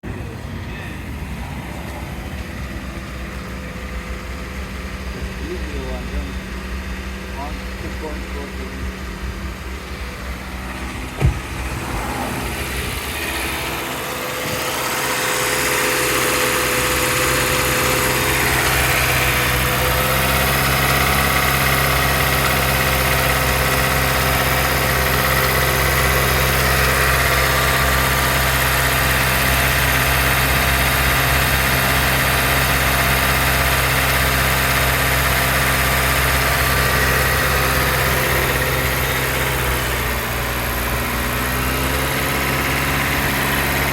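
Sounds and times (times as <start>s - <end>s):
car engine idling: 0.0s - 43.9s
sharp knock: 11.1s - 11.8s.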